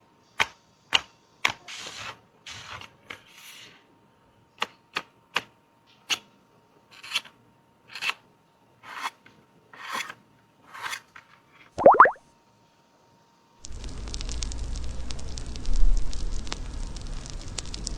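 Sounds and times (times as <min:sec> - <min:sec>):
faint steady hum: 0:05.2 - 0:17.9.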